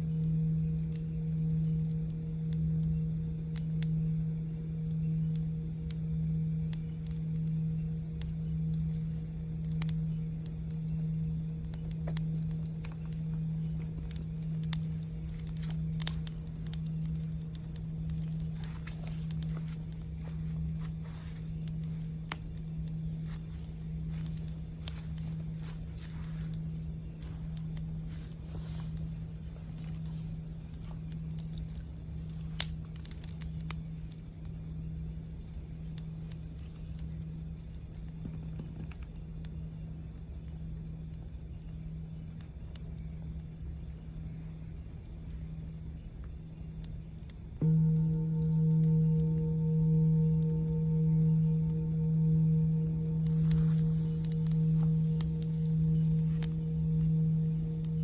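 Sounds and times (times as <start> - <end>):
campfire crackling: 0.0 - 58.0
singing bowl hum: 0.0 - 58.0
low rumble: 47.6 - 58.0.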